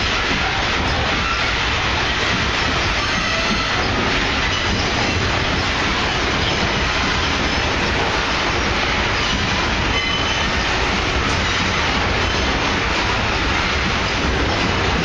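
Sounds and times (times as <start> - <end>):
steel wheels on rail: 0.0 - 15.0
faint high wheel squeals: 9.2 - 10.7.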